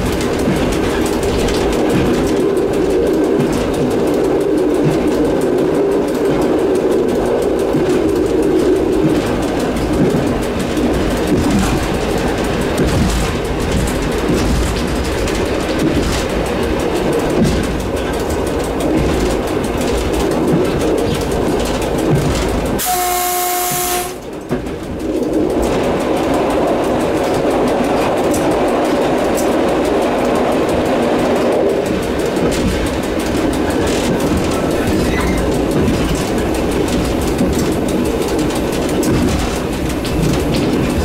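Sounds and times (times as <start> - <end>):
train rolling on track: 0.0 - 41.0
train horn blast: 22.8 - 24.2.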